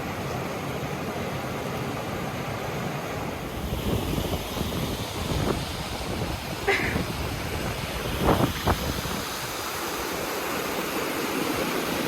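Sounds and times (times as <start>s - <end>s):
river water rushing at waterfall: 0.0s - 12.0s
wind buffeting microphone: 3.5s - 10.2s.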